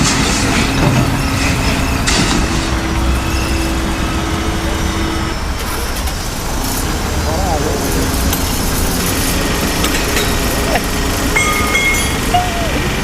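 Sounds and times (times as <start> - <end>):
motor vehicle engine rumble: 0.0 - 13.0
steady tone: 11.3 - 13.0.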